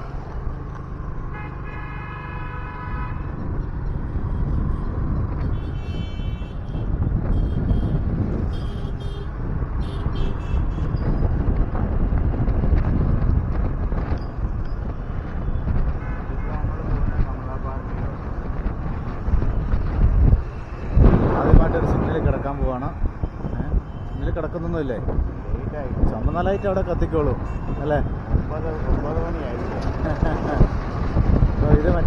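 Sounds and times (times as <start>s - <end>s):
traffic rumble: 0.0s - 32.0s
vehicle horns honking: 1.3s - 3.3s, 5.4s - 11.0s, 15.4s - 16.8s, 26.5s - 28.2s.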